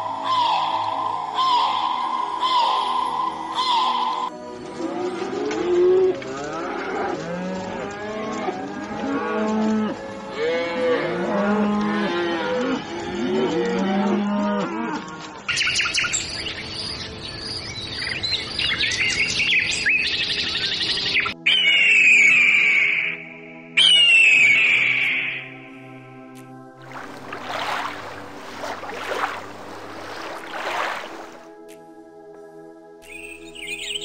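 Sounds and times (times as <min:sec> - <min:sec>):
cows mooing: 0:04.8 - 0:15.4
birds chirping rapidly: 0:33.1 - 0:34.0.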